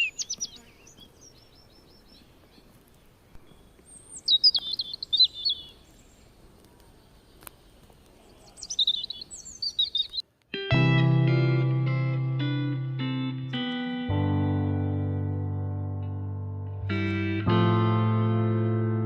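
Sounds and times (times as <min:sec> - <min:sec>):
songbird singing: 0:00.0 - 0:10.3
quiet forest background: 0:00.0 - 0:12.2.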